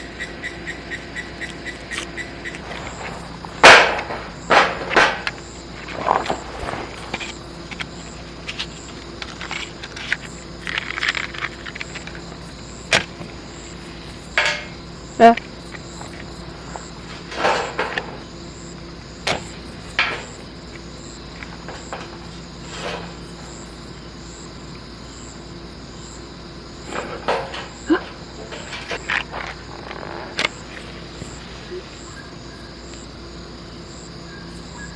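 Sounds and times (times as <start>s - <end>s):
insects chirping: 0.0s - 34.9s
sharp knocks and clacks: 1.4s - 5.4s
objects rustling when handled: 1.9s - 18.3s, 26.8s - 32.8s.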